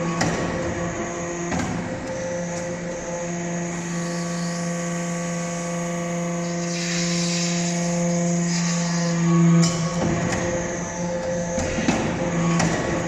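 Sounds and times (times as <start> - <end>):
hydraulic press motor hum: 0.0 - 13.0
hydraulic hiss: 6.1 - 13.0.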